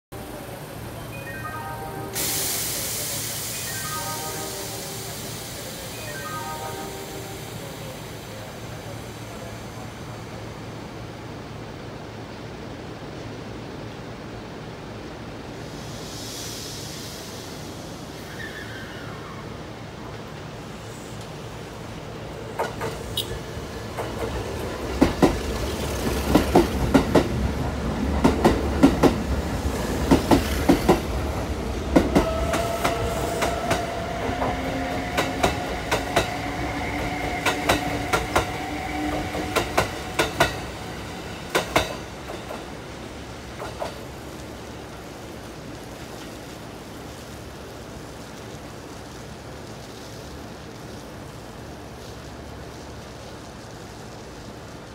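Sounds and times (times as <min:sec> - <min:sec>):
wheels clacking over rail joints: 0:22.4 - 0:42.8.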